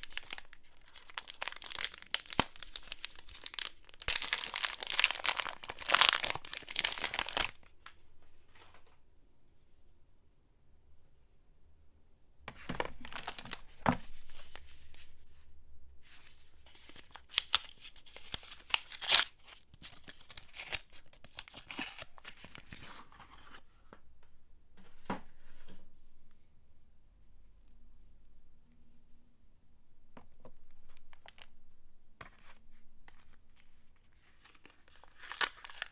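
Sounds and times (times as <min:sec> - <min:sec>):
packaging tearing and crinkling: 0:00.0 - 0:07.6, 0:13.0 - 0:13.6, 0:16.9 - 0:22.8, 0:34.4 - 0:35.9.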